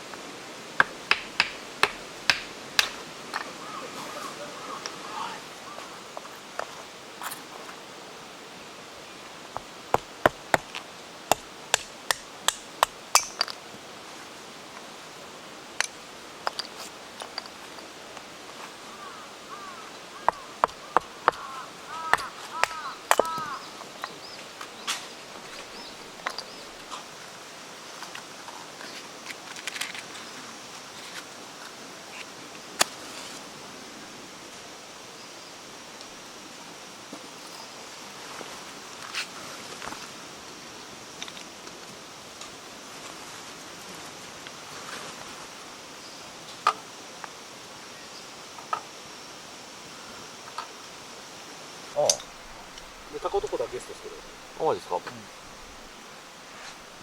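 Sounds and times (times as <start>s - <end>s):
steady hiss: 0.0s - 57.0s
sharp knocks: 0.8s - 3.0s, 20.2s - 21.5s, 22.1s - 23.6s
wood fire crackling: 0.8s - 3.4s, 9.4s - 13.6s, 51.9s - 57.0s.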